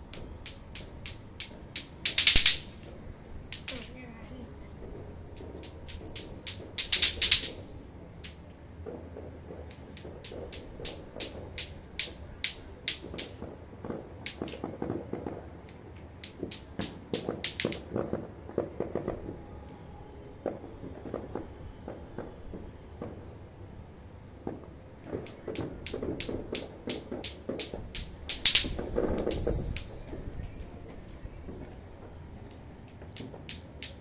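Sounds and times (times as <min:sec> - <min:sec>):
cricket chirping trill: 0:00.0 - 0:34.0
sharp clicks and pops: 0:00.1 - 0:04.0, 0:15.7 - 0:18.0, 0:25.2 - 0:30.2.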